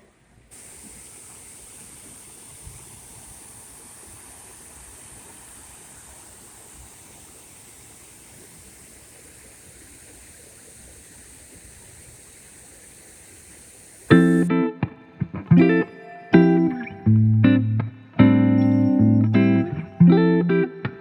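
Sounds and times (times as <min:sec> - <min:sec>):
waterfall rushing: 0:00.5 - 0:16.9
electric guitar music: 0:14.1 - 0:21.0.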